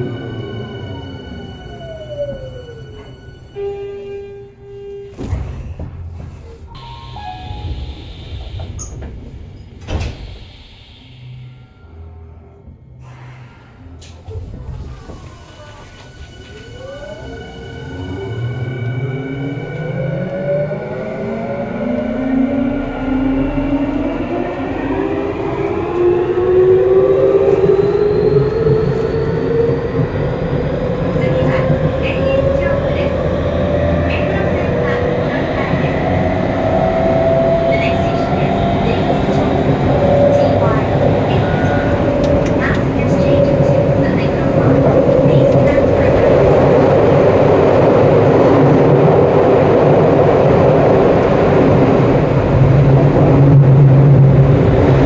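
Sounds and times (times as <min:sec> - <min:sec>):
train wheels rumbling on rail: 0:04.9 - 0:11.6, 0:13.0 - 0:55.0.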